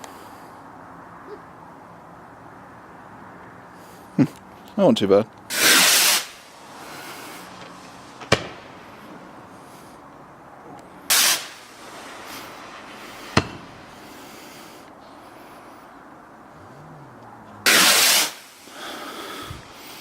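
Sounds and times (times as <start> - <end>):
firework bang: 5.5 - 6.5, 7.4 - 9.0, 11.1 - 14.2, 17.6 - 18.6
firework launch whoosh: 5.5 - 9.2, 11.1 - 14.8, 17.6 - 19.8.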